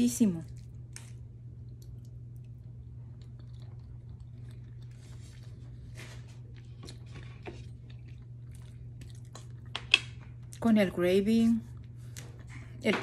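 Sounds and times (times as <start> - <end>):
low hum: 0.0 - 13.0
person chewing: 0.5 - 10.6.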